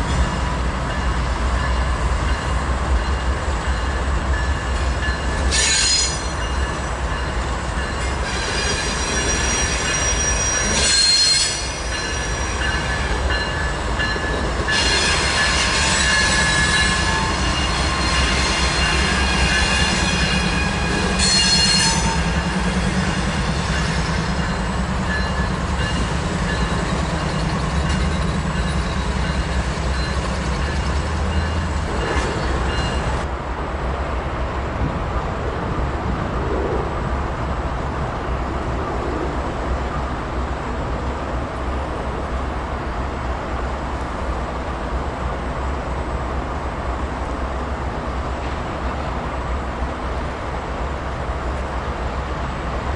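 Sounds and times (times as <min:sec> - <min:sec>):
train engine rumble: 0:00.0 - 0:52.9
train wheels squealing: 0:00.9 - 0:33.2.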